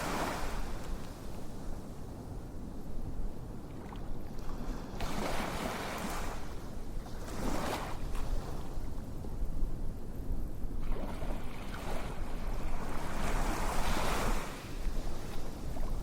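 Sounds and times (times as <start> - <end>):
ocean waves washing in: 0.0 - 1.4.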